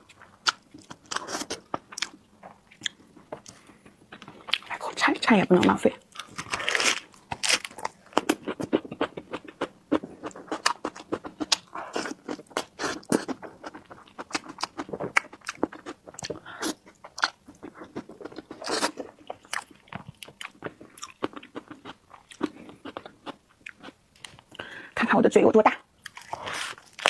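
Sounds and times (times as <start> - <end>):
wet chewing: 5.6 - 24.4, 26.0 - 27.0
crunching bites: 6.1 - 9.4.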